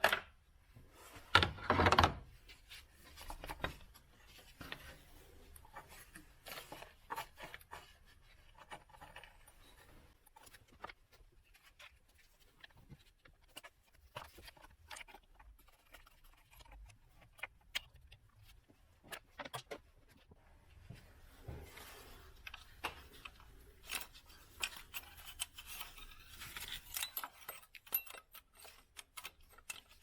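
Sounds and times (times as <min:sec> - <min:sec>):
hand tools clicking and knocking: 0:22.6 - 0:30.0.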